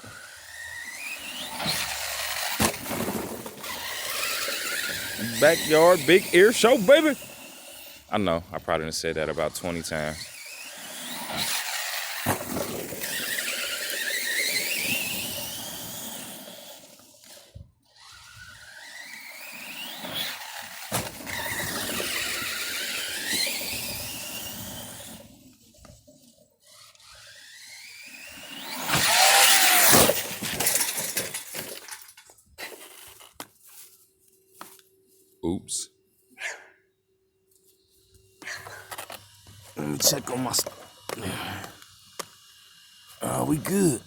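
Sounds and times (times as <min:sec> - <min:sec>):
electric motor whining: 0:00.0 - 0:08.2, 0:09.0 - 0:30.8.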